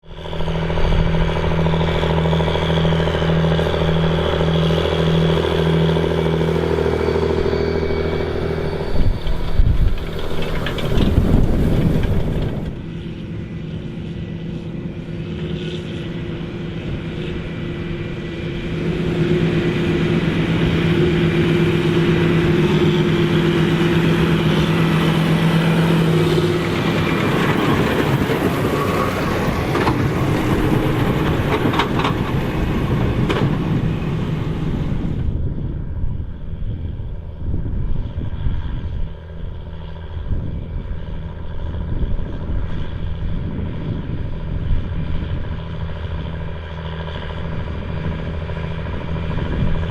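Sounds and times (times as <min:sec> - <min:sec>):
tractor diesel engine running: 0:00.0 - 0:49.9
loud uneven noise: 0:00.3 - 0:35.3.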